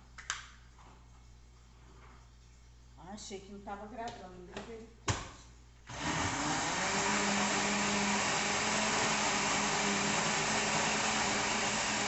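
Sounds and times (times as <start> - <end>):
electric blender running: 5.9 - 12.0.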